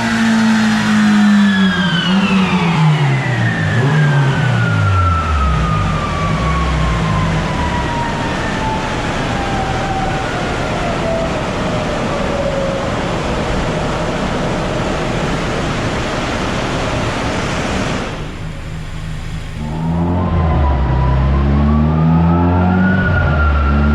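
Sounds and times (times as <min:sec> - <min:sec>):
whine falling in pitch: 0:14.9 - 0:23.9.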